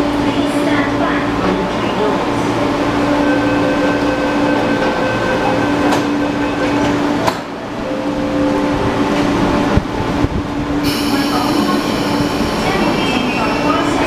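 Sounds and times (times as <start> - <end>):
electric train humming: 0.0 - 14.0.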